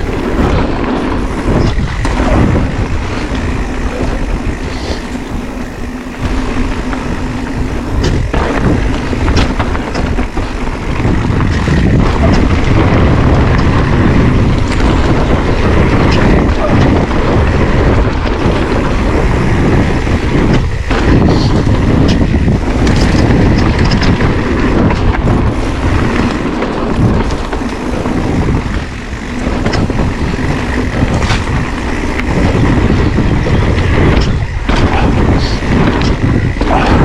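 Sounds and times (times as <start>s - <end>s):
bike knocking and rattling: 0.0s - 37.0s
bike tyres on trail: 0.0s - 37.0s
wind buffeting microphone: 0.0s - 37.0s.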